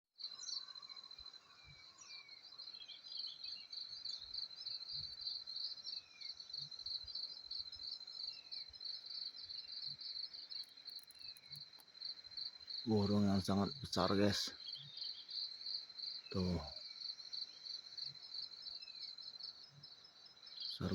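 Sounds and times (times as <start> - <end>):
insects trilling: 0.2 - 20.9
falling bird calls: 16.3 - 16.7, 20.7 - 20.9.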